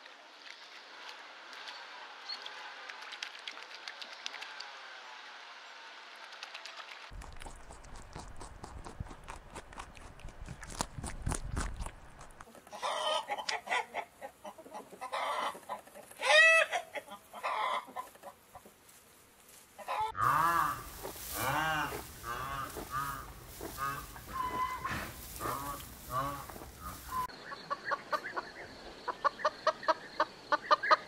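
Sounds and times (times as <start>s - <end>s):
hens clucking: 12.2s - 18.9s, 19.7s - 31.0s
short chicken calls: 16.2s - 18.1s, 19.8s - 27.3s
rustling: 18.0s - 27.3s
rooster crowing: 19.9s - 26.5s.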